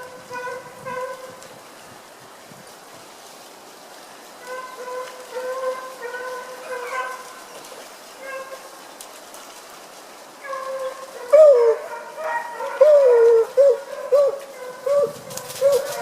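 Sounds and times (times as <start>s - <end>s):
hounds baying: 4.5s - 7.3s, 10.4s - 16.0s.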